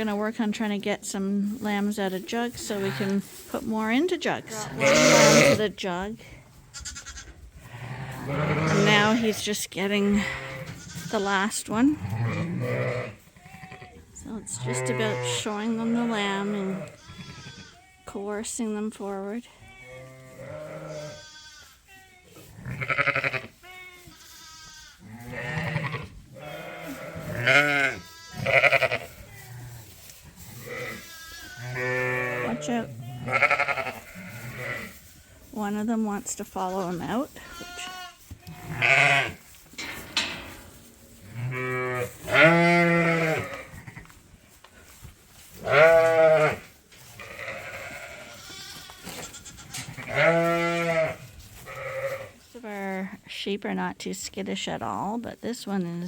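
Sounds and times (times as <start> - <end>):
sheep bleating: 4.4 - 5.7, 6.7 - 9.5, 10.1 - 18.1, 19.6 - 29.7, 30.6 - 34.9, 36.7 - 39.4, 41.3 - 44.1, 45.6 - 46.6, 47.2 - 52.3.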